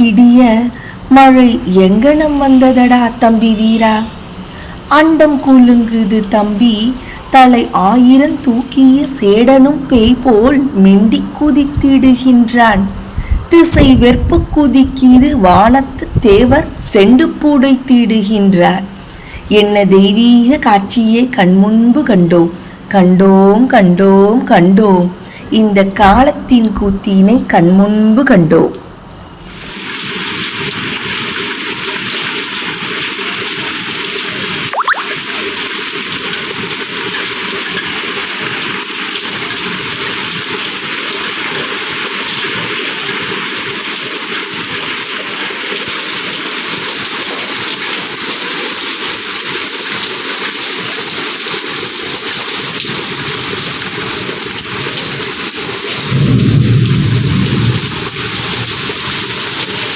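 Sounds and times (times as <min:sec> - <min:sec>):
heavy rain: 0:00.0 - 0:59.9
thunder rumble: 0:11.2 - 0:17.0, 0:56.0 - 0:59.9
sharp thunder crack: 0:56.0 - 0:59.7.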